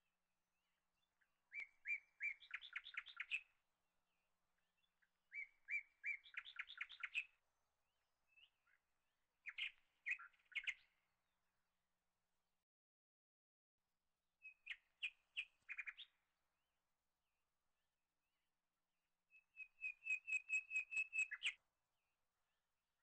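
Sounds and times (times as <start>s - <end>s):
songbird singing faintly: 0.6s - 7.4s, 8.3s - 11.0s, 14.4s - 16.2s, 19.3s - 21.6s.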